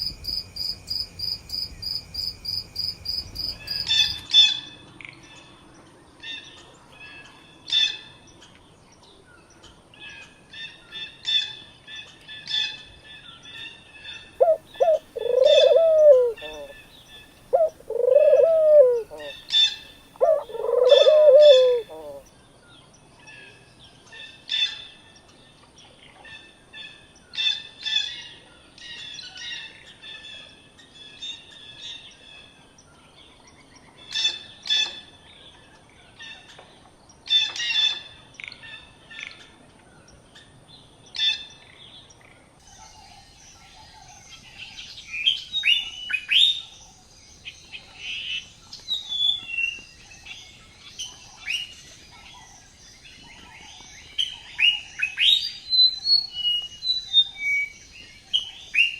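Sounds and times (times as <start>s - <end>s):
birds chirping: 14.4s - 22.3s.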